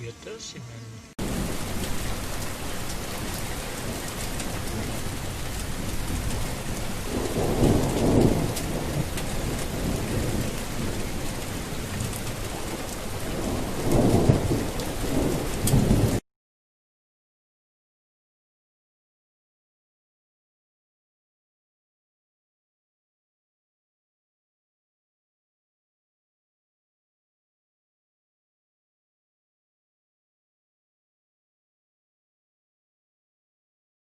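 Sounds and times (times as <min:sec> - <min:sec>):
heavy rain: 0:01.2 - 0:16.2
thunder rolling: 0:01.2 - 0:16.2.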